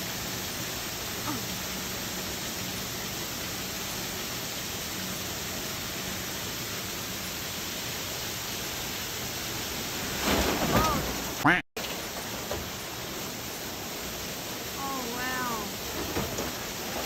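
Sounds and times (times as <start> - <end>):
storm water pouring down: 0.0 - 17.0.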